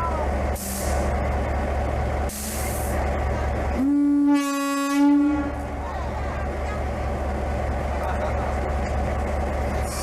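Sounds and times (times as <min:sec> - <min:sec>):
engine rumble: 0:00.0 - 0:10.0
train air horn blast: 0:03.8 - 0:05.7.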